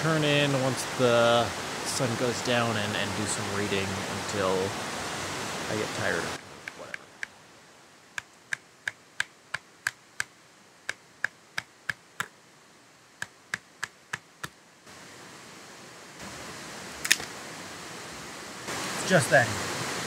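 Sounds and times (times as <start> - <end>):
steady rushing noise: 0.0 - 12.3.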